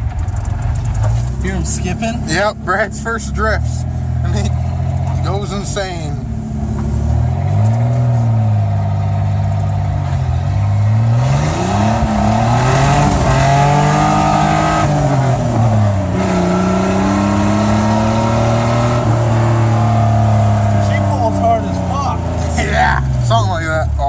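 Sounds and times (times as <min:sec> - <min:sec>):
truck engine revving: 0:00.0 - 0:24.0
rushing noise: 0:11.3 - 0:20.7.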